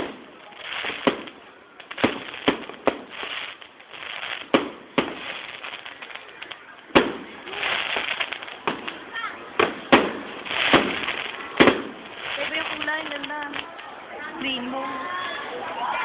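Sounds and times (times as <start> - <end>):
fireworks crackling: 0.0 - 14.8
fireworks shells bursting: 9.6 - 13.7.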